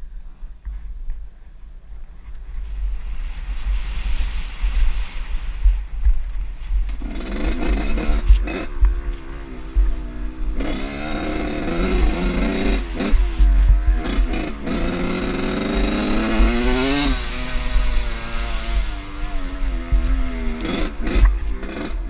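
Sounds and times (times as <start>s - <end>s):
constant low rumble: 0.0s - 22.0s
motorbike engine revving: 6.9s - 22.0s.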